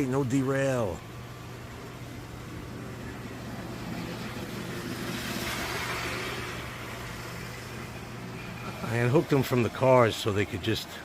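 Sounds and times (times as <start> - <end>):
model train running on track: 2.7 - 10.9.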